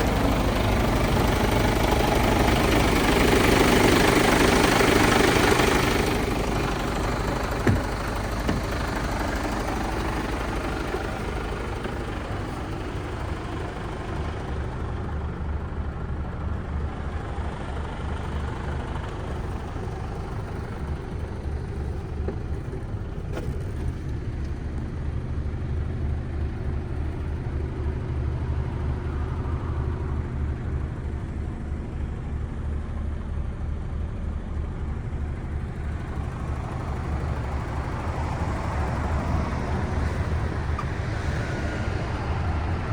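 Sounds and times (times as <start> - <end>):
diesel truck engine humming: 0.0 - 42.9.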